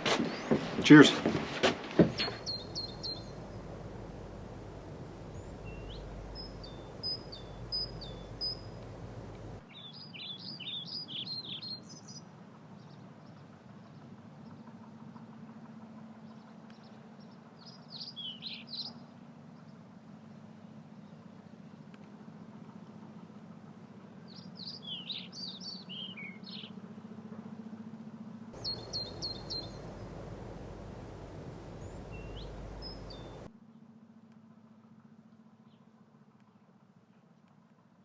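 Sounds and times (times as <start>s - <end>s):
faint outdoor background noise: 0.0s - 12.2s, 28.6s - 33.5s
small birds chirping: 2.1s - 9.6s, 28.6s - 33.5s.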